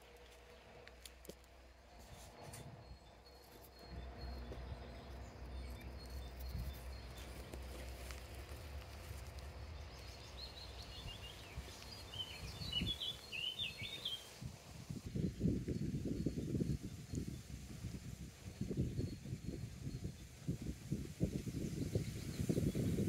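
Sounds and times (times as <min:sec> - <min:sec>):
songbird chirping: 0:00.0 - 0:17.7
steady low rumble: 0:00.1 - 0:21.5.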